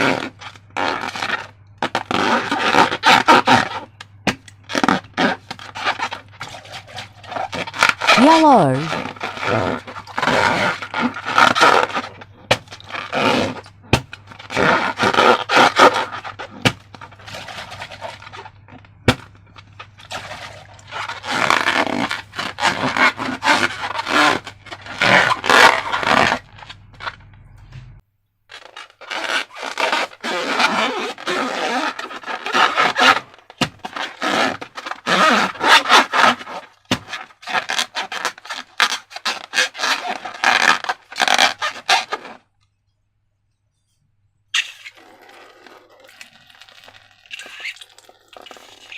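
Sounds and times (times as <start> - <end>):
balloons and slime scraping: 0.0 - 27.8, 28.5 - 42.5, 43.7 - 48.9.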